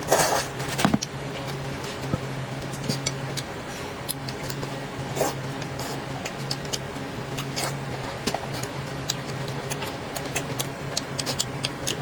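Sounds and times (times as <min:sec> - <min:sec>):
steady low hum: 0:00.0 - 0:12.0
chewing with wet clicks: 0:05.6 - 0:07.8, 0:08.5 - 0:12.0.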